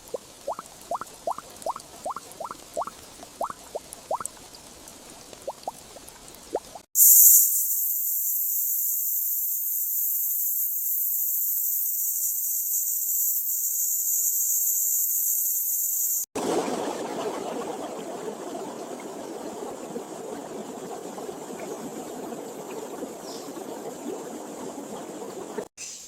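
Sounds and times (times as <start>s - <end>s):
flowing water: 0.0s - 6.9s, 16.4s - 25.7s
insect chorus drone: 7.0s - 16.3s.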